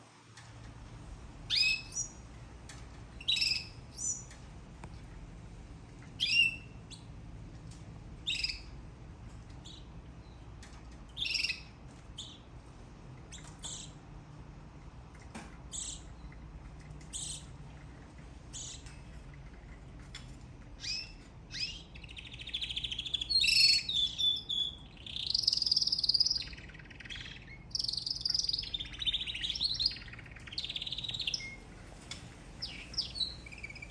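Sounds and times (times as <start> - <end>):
canary chirping and warbling: 1.4 - 4.5, 5.7 - 14.2, 15.1 - 33.9.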